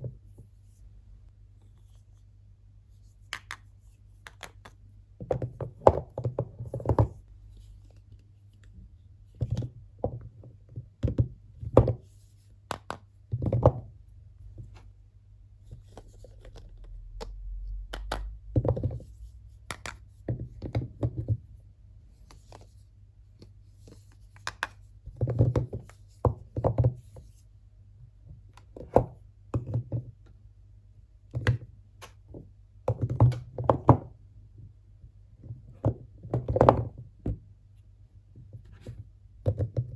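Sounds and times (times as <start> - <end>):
soap bars knocking on hard surface: 5.2 - 7.2.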